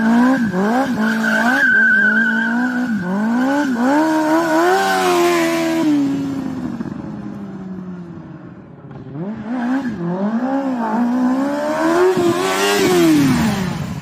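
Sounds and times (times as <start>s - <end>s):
motorcycle engine revving: 0.0s - 1.6s, 2.3s - 14.0s
high-pitched tyre squeal: 0.0s - 5.5s.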